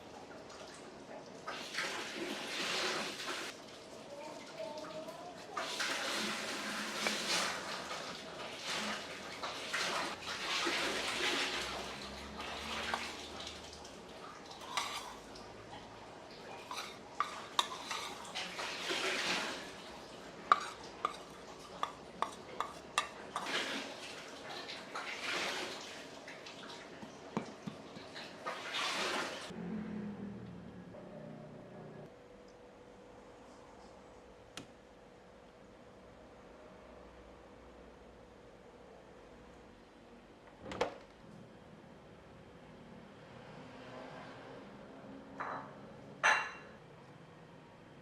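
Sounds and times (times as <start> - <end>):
water splashing: 4.6 - 29.5.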